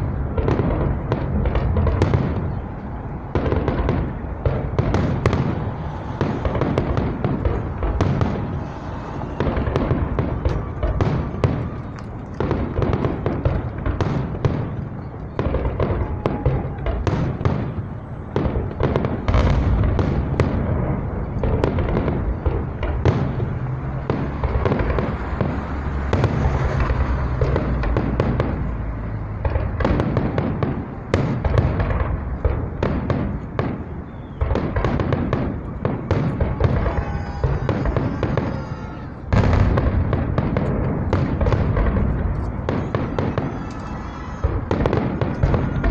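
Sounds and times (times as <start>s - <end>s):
low rumble: 0.0s - 14.0s
fireworks bangs and crackles: 0.0s - 45.9s.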